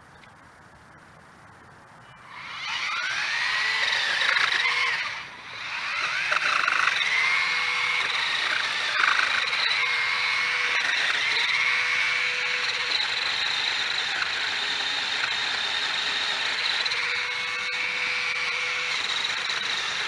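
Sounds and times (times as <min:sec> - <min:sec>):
electric pole saw whining: 0:02.2 - 0:20.0.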